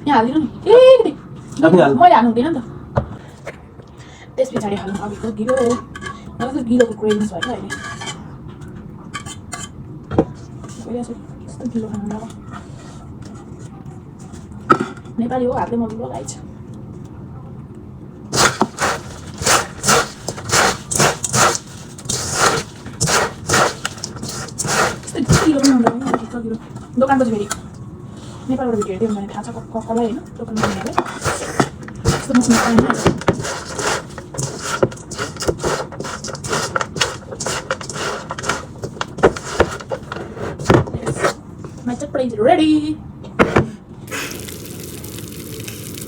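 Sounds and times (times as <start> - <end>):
puffed rice mixed in a bowl: 18.3 - 25.9, 30.6 - 40.0, 44.1 - 46.0.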